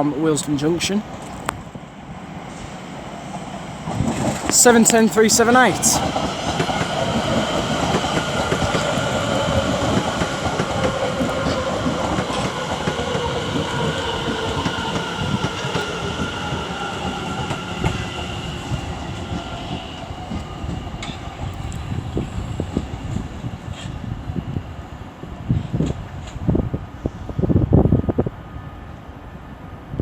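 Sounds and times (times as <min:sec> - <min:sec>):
train wheels rumbling on rails: 0:00.2 - 0:30.0
train motor whine: 0:05.7 - 0:22.4.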